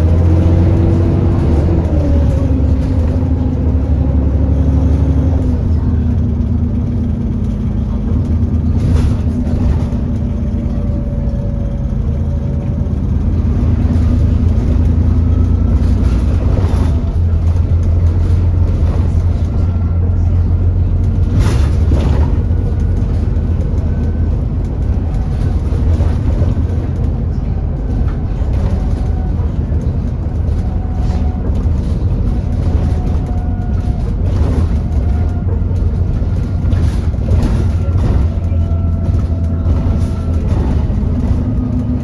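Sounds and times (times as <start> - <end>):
bus engine rumble: 0.0 - 42.0
faint engine whine: 0.0 - 42.0
rattles and knocks: 12.4 - 42.0.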